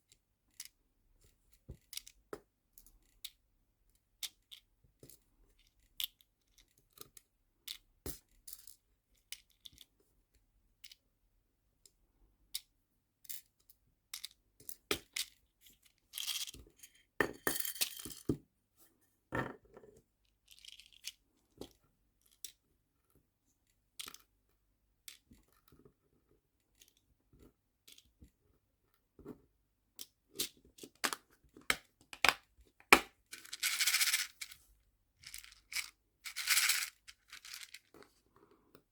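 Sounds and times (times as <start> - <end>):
small plastic pieces rattling: 33.3 - 34.6, 35.2 - 37.8.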